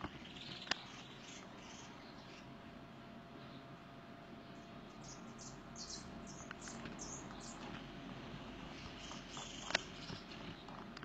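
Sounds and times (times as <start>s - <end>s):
small bird chirping: 0.0s - 2.5s, 4.5s - 7.7s, 8.6s - 10.8s.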